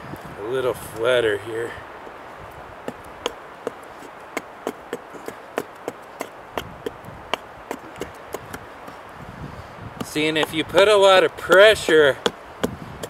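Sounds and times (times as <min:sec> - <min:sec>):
axe chopping wood: 0:02.9 - 0:09.0, 0:10.0 - 0:13.0.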